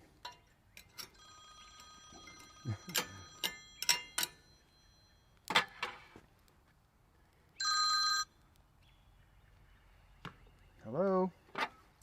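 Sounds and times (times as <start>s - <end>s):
mobile phone ringtone: 1.2s - 5.4s, 7.6s - 8.3s.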